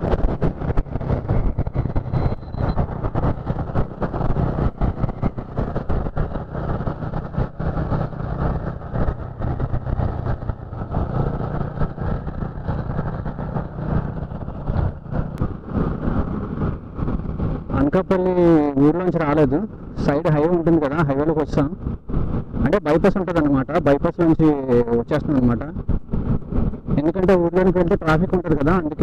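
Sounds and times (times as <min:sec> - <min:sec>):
motorcycle engine cruising: 0:00.0 - 0:19.9
road and traffic noise: 0:00.0 - 0:29.0.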